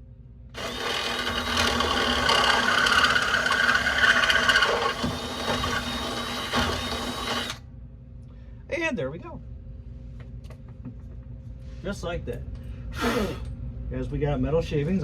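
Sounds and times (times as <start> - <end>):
power drill boring metal: 0.6 - 7.6.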